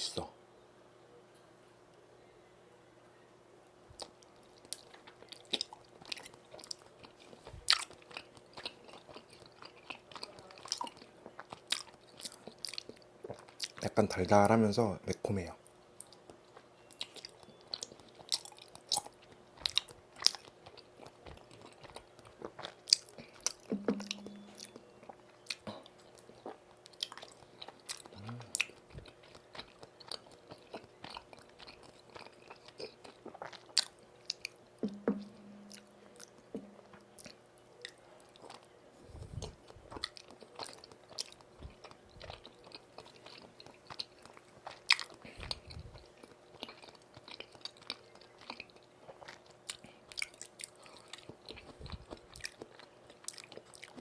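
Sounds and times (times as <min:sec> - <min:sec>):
mouth clicks and smacks: 0:03.9 - 0:06.9
chewing and biting: 0:04.0 - 0:13.9, 0:16.0 - 0:35.0, 0:35.7 - 0:54.0.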